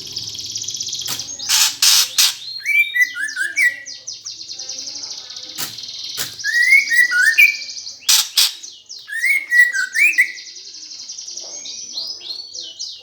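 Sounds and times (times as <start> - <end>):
sparrows chattering and chirping: 0.0 - 13.0
sharp clicks: 1.0 - 2.5, 5.6 - 6.6.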